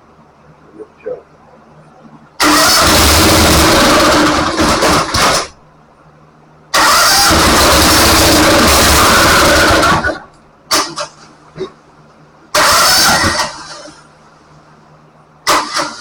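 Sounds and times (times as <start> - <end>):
engine cranking and firing: 2.4 - 5.6, 6.7 - 11.3, 12.5 - 14.1, 15.4 - 16.0.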